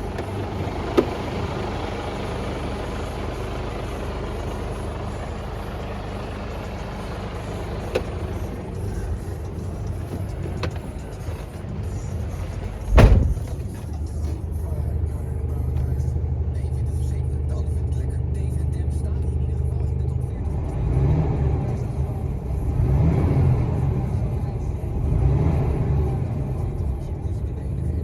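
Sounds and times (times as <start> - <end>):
heavy thump: 0.0 - 1.6, 7.4 - 13.9
diesel truck engine idling: 0.0 - 28.0.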